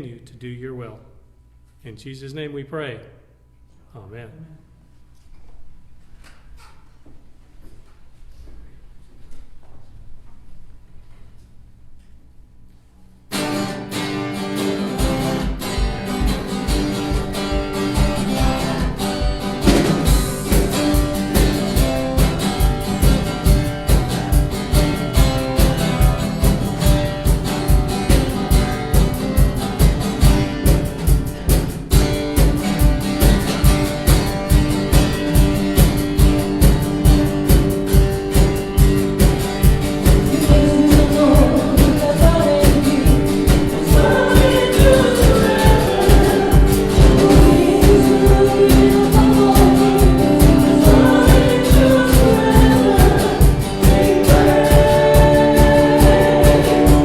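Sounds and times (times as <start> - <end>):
strummed guitar: 13.3 - 57.0
voices singing: 40.3 - 57.0.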